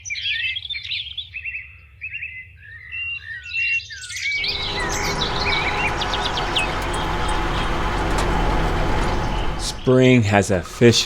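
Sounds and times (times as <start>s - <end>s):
songbirds chirping and trilling: 4.4s - 9.9s
steady machine noise: 4.4s - 10.6s.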